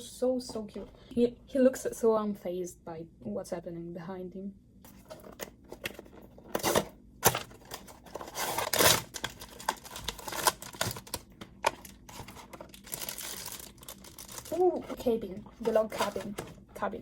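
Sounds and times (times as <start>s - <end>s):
packaging tearing and crinkling: 5.4s - 15.0s.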